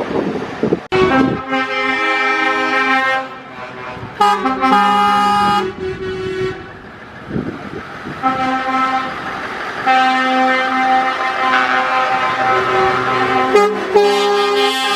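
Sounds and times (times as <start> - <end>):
truck air horn blasts: 0.9 - 6.8, 8.2 - 9.2, 9.8 - 14.9.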